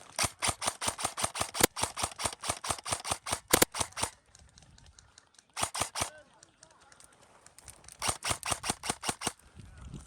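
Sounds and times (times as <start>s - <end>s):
airsoft gun rapid shots: 0.0s - 4.2s, 5.6s - 6.2s, 8.0s - 9.4s.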